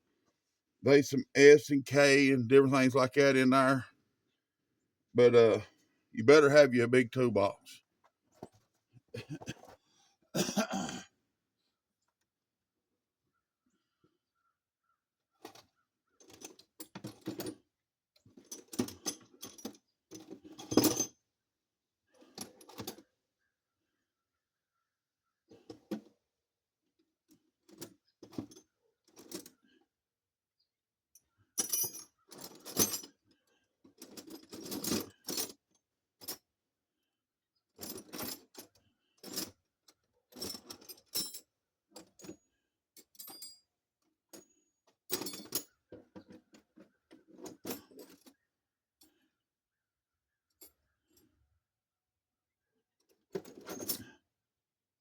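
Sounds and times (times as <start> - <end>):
metal tools clinking in toolbox: 18.4 - 21.2, 34.0 - 35.6, 45.1 - 45.7, 53.4 - 54.1.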